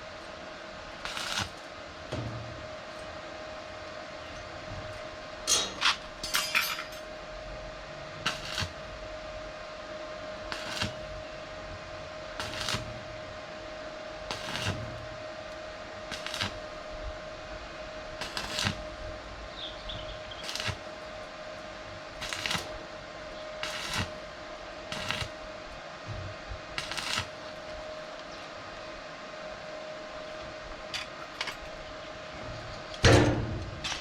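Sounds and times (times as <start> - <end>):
electrical hum: 0.0 - 34.0
sharp knocks on steel: 33.0 - 34.0.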